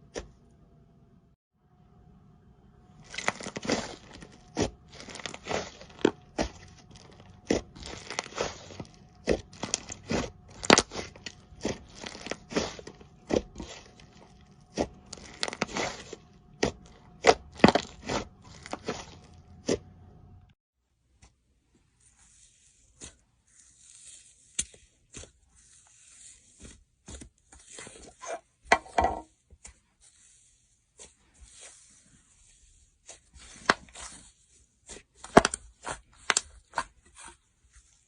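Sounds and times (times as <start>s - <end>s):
slime popping and crackling: 3.0s - 19.2s, 35.0s - 37.3s.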